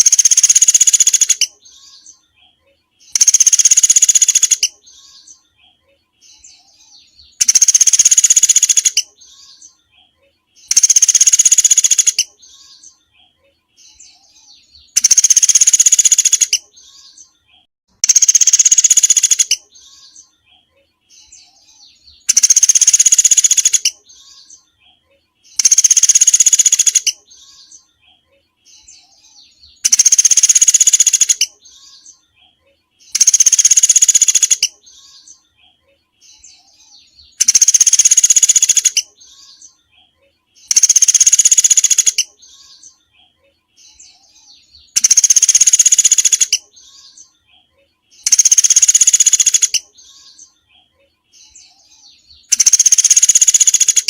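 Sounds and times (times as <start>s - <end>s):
songbird trilling: 0.0s - 2.1s, 3.0s - 5.4s, 7.0s - 9.7s, 10.6s - 12.9s, 14.5s - 17.1s, 18.0s - 20.2s, 21.9s - 24.6s, 25.6s - 27.7s, 29.4s - 32.1s, 33.1s - 35.3s, 36.5s - 39.7s, 40.6s - 42.9s, 44.5s - 47.2s, 48.2s - 50.5s, 52.1s - 54.0s
faint bird chirps: 0.0s - 54.0s.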